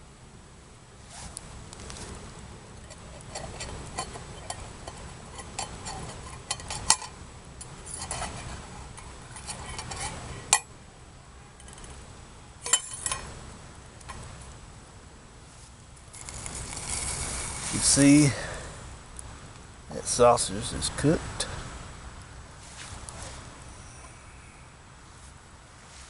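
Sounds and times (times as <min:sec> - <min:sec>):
metal utensil scraping a pot: 0:02.9 - 0:07.1, 0:07.8 - 0:10.6, 0:16.1 - 0:18.0
sharp metal clanks: 0:12.6 - 0:13.3.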